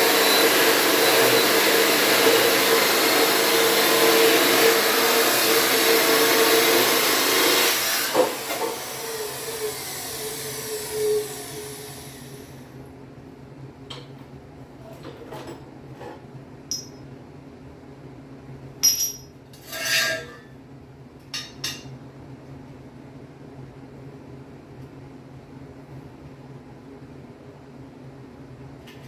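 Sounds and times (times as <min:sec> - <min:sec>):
power tool winding down: 0:00.0 - 0:12.6
metal tools clinking: 0:16.7 - 0:17.0, 0:18.8 - 0:20.3.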